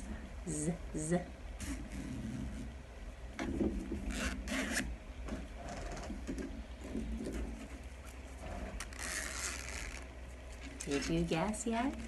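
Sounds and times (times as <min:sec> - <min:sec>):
zipper being zipped: 0:04.1 - 0:04.9, 0:08.5 - 0:10.1.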